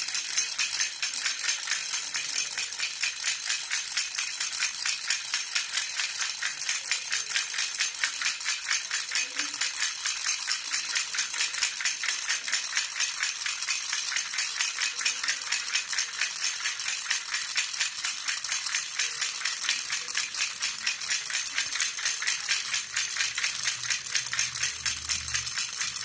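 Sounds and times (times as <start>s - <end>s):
baby rattle jingling: 0.0s - 26.0s.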